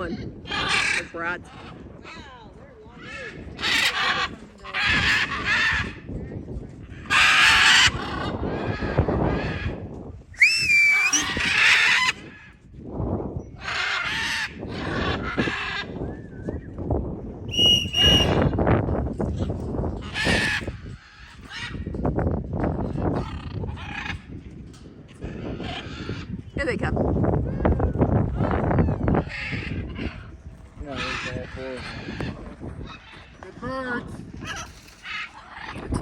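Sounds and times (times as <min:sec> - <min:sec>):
wind rumbling on microphone: 0:00.0 - 0:36.0
parrots squawking: 0:00.5 - 0:01.8, 0:03.6 - 0:06.0, 0:07.0 - 0:09.6, 0:10.4 - 0:12.2, 0:13.6 - 0:16.0, 0:20.0 - 0:21.9, 0:22.9 - 0:24.3, 0:25.3 - 0:26.3, 0:28.3 - 0:33.4, 0:34.4 - 0:35.9.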